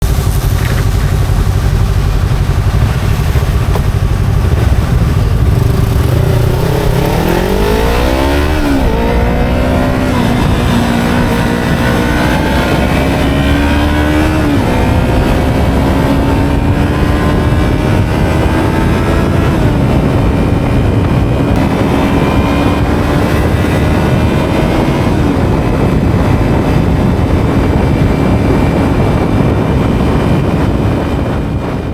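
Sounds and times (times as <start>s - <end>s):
motorcycle engine accelerating: 0.0s - 31.9s.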